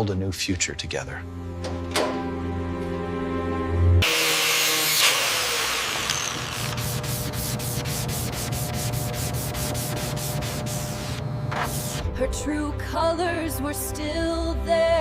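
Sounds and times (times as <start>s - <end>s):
sanding car bodywork: 6.6s - 12.0s.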